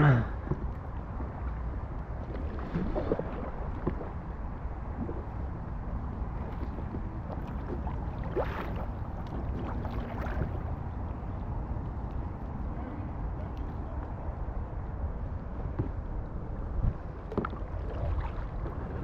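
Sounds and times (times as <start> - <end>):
wind noise on microphone: 0.0 - 19.0
kayak paddles splashing: 0.5 - 11.3, 17.0 - 19.0.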